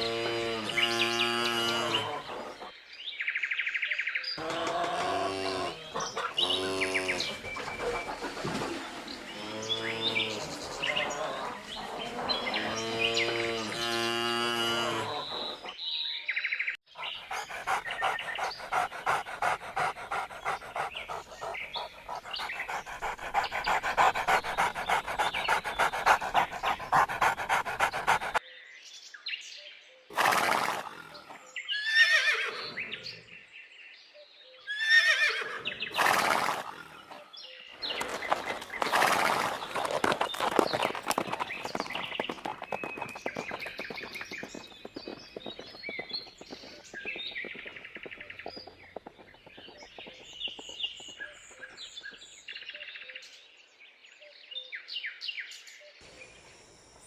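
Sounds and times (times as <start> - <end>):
rapid animal chatter: 0.7 - 2.7, 4.4 - 9.1, 10.2 - 13.9, 17.0 - 28.4, 37.8 - 52.1.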